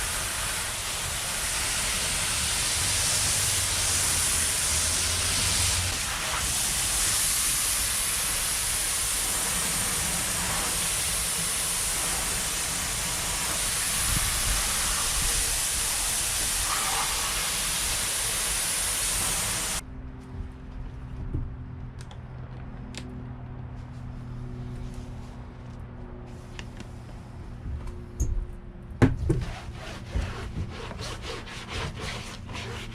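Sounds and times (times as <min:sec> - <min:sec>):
water spraying from hose: 0:00.0 - 0:19.8.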